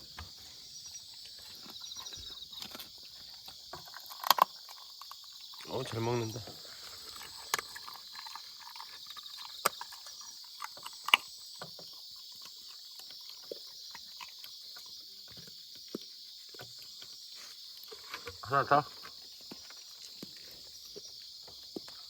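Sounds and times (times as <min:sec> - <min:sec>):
dog chewing food crunches: 0:01.0 - 0:17.2.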